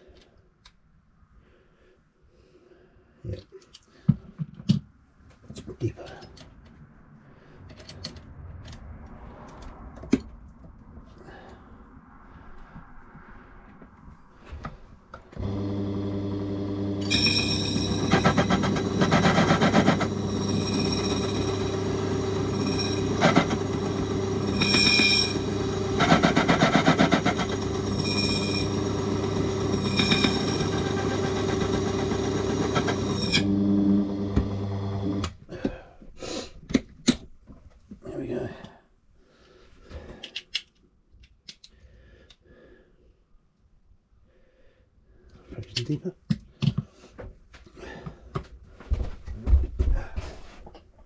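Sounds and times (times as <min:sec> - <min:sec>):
metal cutting: 0:15.4 - 0:35.2
high squeals: 0:17.0 - 0:33.5
scraping on metal: 0:17.0 - 0:33.5.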